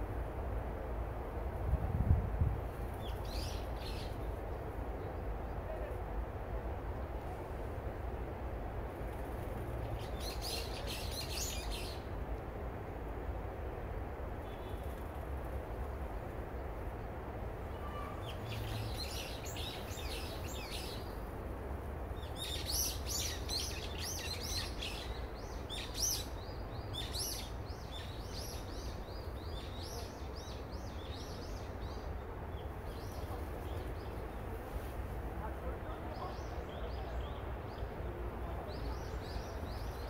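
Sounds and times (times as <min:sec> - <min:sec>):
small birds chirping: 0:17.8 - 0:21.2, 0:22.1 - 0:34.8.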